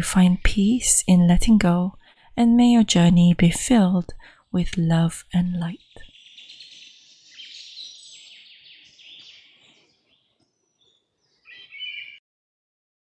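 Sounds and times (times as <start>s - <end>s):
songbirds chirping and trilling: 5.7s - 12.2s.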